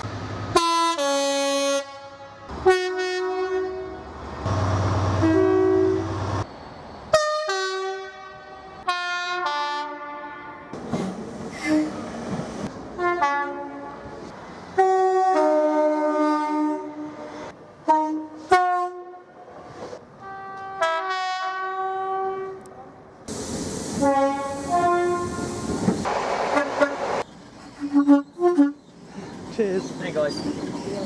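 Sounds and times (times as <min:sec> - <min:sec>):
passing train noise: 0:00.0 - 0:31.0
two-tone train horn blasts: 0:00.5 - 0:04.0, 0:05.1 - 0:06.2, 0:07.1 - 0:10.7, 0:13.0 - 0:14.2, 0:14.8 - 0:19.3, 0:20.2 - 0:22.8, 0:24.0 - 0:25.7, 0:27.8 - 0:28.8.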